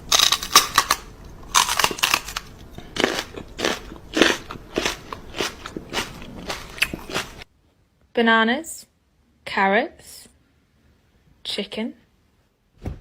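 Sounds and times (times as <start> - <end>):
crunchy chewing: 0.1 - 7.5.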